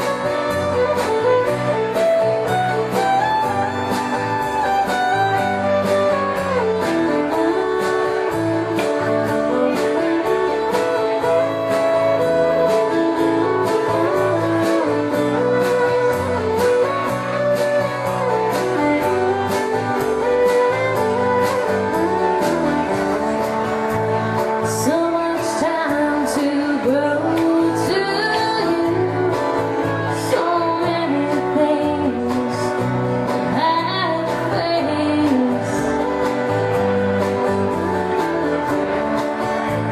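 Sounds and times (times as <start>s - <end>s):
strummed guitars: 0.0s - 39.9s
wavering melodic lead line: 0.0s - 39.9s.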